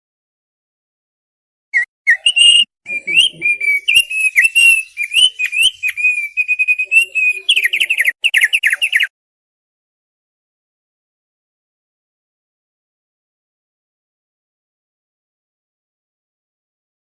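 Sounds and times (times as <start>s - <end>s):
bird singing chirps and whistles: 1.8s - 9.1s.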